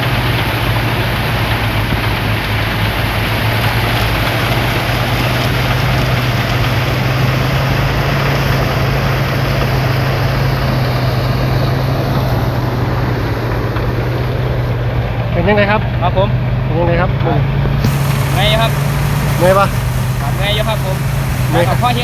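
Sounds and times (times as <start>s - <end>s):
engine hum: 17.5s - 22.0s
harsh threshing rattle: 17.8s - 22.0s.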